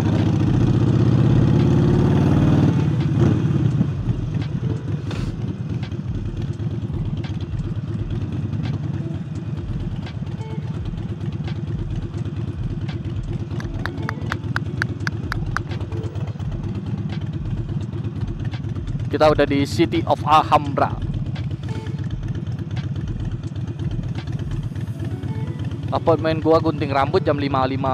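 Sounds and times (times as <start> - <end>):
motorcycle engine revving: 0.0 - 27.9
quick ticks: 12.8 - 16.0.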